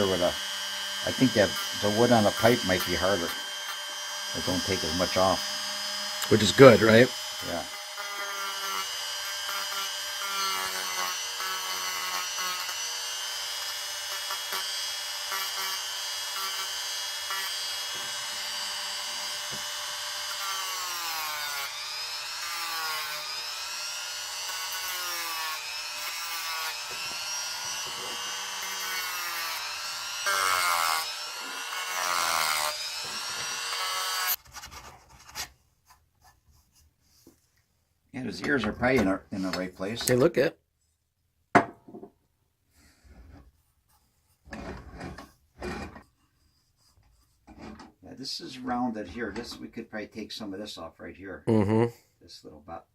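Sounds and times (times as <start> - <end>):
rotary tool carving wood: 0.0 - 35.4, 44.5 - 47.9.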